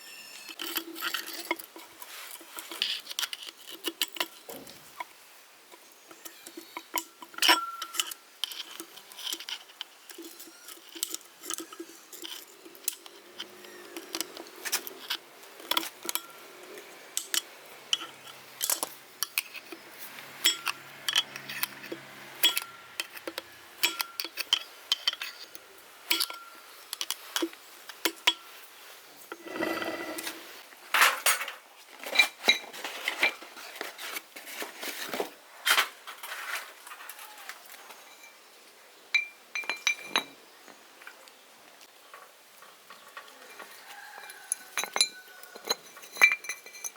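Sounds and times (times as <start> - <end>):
metal tools clinking and knocking: 6.1 - 16.4, 17.2 - 28.5, 31.0 - 33.4, 39.2 - 40.4, 42.9 - 46.9.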